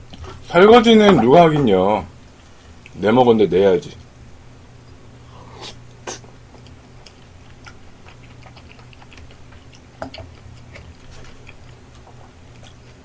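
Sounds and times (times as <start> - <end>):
low steady hum: 0.0 - 13.0
chewing with wet mouth clicks: 2.8 - 3.0, 6.5 - 13.0.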